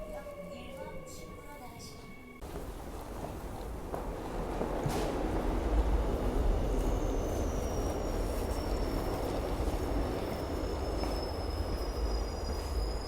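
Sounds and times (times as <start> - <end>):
train rumbling on rails: 2.4 - 13.0
high wheel squeal: 6.7 - 13.0.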